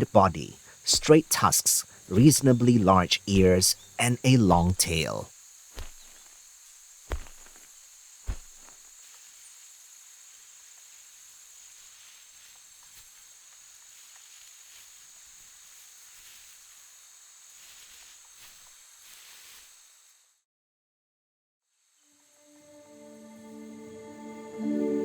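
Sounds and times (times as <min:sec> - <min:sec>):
insects buzzing: 0:00.0 - 0:20.4, 0:21.7 - 0:25.0
dull thumps: 0:05.8 - 0:06.4, 0:07.1 - 0:07.7, 0:08.3 - 0:08.8.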